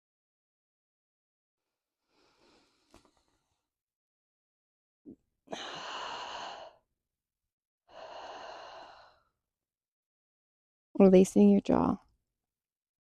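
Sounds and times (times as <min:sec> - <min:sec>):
person breathing with hissing rasp: 0:05.5 - 0:06.8, 0:07.9 - 0:09.3.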